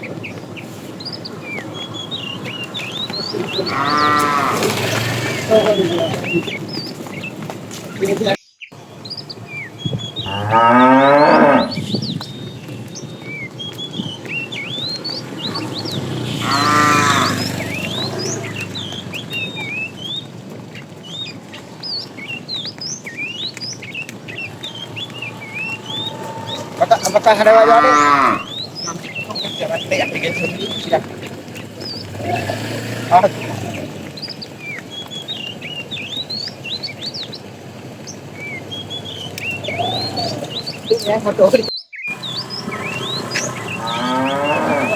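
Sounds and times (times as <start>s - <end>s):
songbird chirping: 0.0s - 44.9s
cattle mooing: 1.8s - 6.5s, 9.8s - 12.0s, 15.0s - 22.8s, 23.8s - 31.3s, 32.0s - 34.1s, 38.8s - 41.4s, 42.1s - 44.9s.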